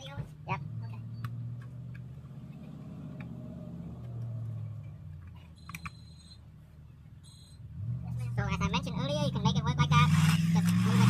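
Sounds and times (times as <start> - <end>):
car engine idling: 0.0 - 11.0
short high beep: 7.2 - 7.6.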